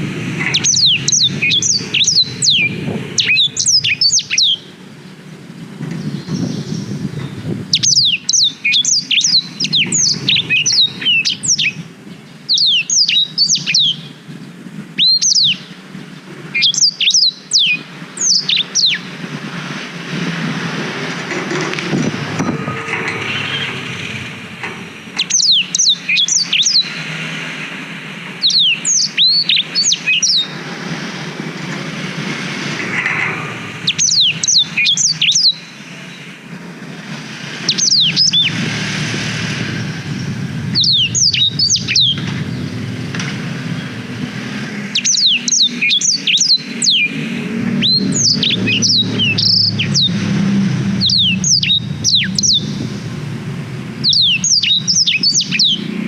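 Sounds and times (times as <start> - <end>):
canary chirping song: 0.0 - 19.8, 20.4 - 27.5, 28.4 - 31.2, 32.8 - 36.3, 37.4 - 38.8, 39.5 - 53.0, 54.0 - 56.0
low rumble: 20.1 - 25.7, 38.0 - 45.3, 47.3 - 55.1.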